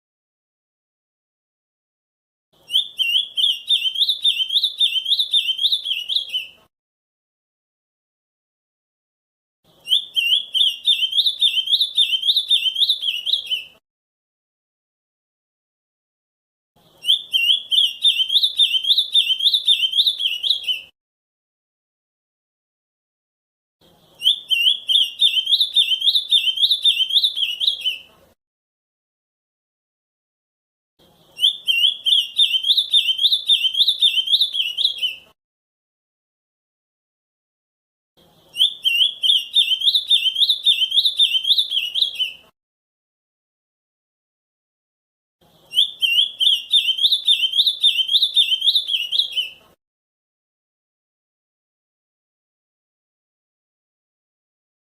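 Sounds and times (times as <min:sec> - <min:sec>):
bird singing whistled notes: 0:02.6 - 0:06.6, 0:09.8 - 0:13.8, 0:16.9 - 0:20.9, 0:24.0 - 0:28.1, 0:31.2 - 0:35.4, 0:38.3 - 0:42.5, 0:45.6 - 0:49.6.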